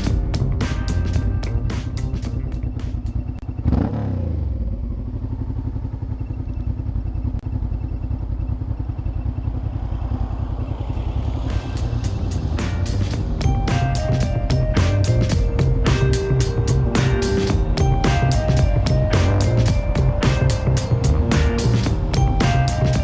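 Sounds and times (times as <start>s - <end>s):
music: 0.0s - 3.1s, 11.5s - 23.0s
motorcycle engine idling: 4.4s - 23.0s.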